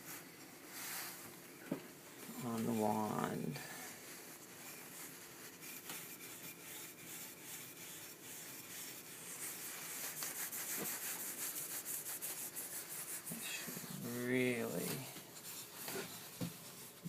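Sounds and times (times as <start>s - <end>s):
cloth rubbing wood on lathe: 0.0s - 17.0s.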